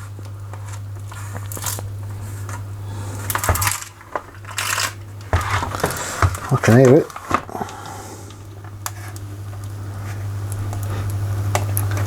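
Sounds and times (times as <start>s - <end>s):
laminator motor hum: 0.0s - 12.0s
pouch crunching in rollers: 1.0s - 9.2s.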